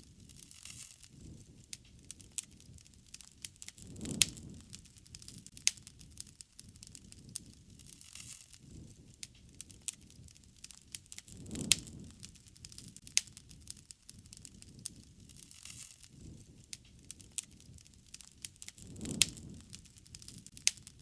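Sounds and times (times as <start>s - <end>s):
low rush of burning: 0.0s - 21.0s
wood fire crackling and popping: 0.0s - 21.0s.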